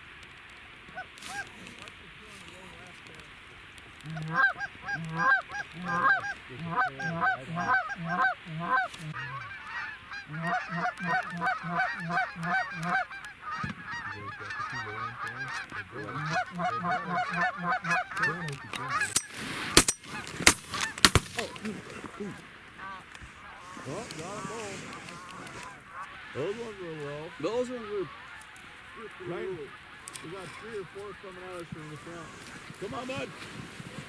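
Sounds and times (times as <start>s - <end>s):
geese honking: 0.8s - 34.0s
shotgun shots: 19.7s - 21.5s.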